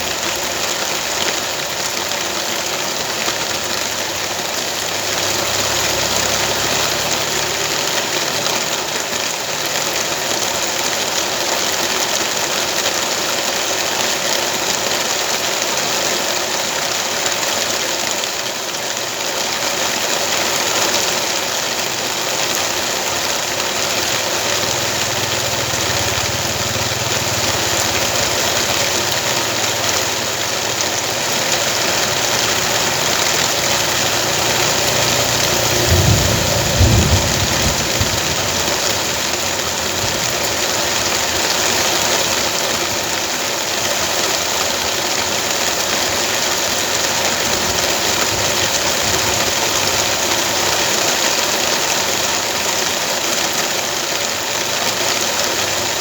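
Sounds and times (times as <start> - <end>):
steady rain: 0.0 - 56.0
small engine running: 23.9 - 45.8
low rumble: 32.1 - 41.5.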